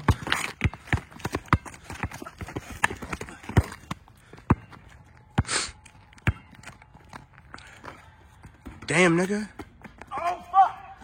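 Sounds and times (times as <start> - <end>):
basketball bouncing on court: 0.0 - 4.8, 6.2 - 7.2.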